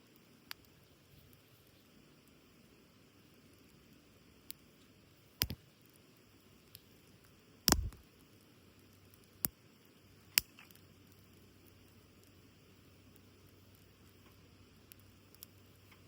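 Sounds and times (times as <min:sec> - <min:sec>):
faint background noise: 0:00.0 - 0:16.0
campfire wood cracking: 0:06.6 - 0:16.0.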